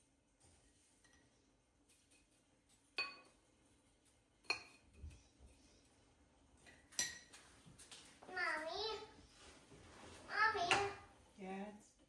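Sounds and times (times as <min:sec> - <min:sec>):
dishes clinking: 0:02.0 - 0:03.4, 0:04.4 - 0:05.2, 0:06.6 - 0:07.9.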